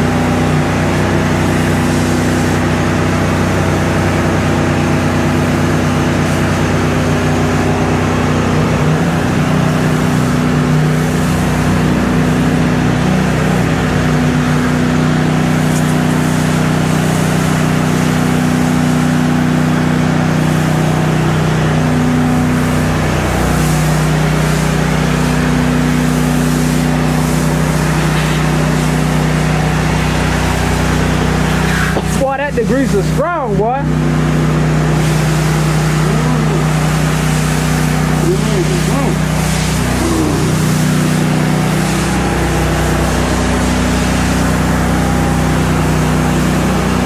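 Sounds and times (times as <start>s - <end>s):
high-pressure water spray hiss: 0.0s - 47.0s
pressure washer engine running: 0.0s - 47.0s.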